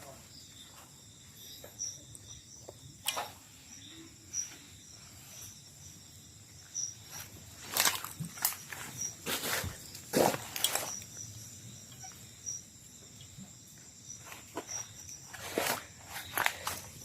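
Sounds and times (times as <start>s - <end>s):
crickets chirping: 0.0s - 17.0s
steady high insect drone: 0.0s - 17.0s
crunching rustles: 6.9s - 11.4s, 14.2s - 17.0s.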